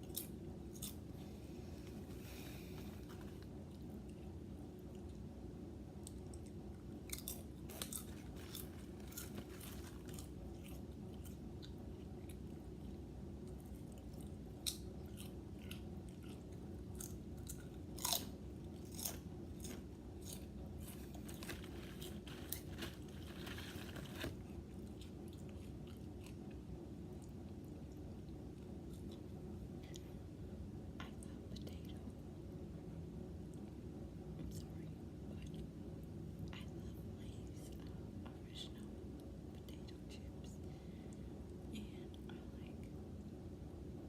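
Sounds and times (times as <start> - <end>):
low background hum: 0.0 - 44.0
potato chips crunched and chewed: 6.0 - 12.5, 13.6 - 26.4.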